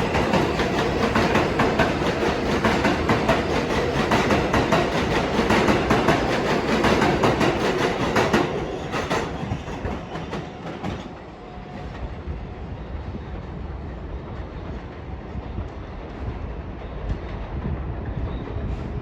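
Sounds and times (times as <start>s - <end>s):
train wheels clacking over joints: 0.0s - 11.2s
train low rumble: 0.0s - 19.0s.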